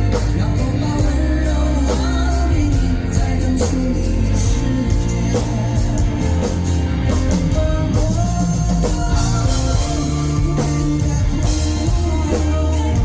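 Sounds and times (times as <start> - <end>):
drum kit: 0.0 - 13.0
guitar: 0.0 - 13.0
live rock band playing: 0.0 - 13.0.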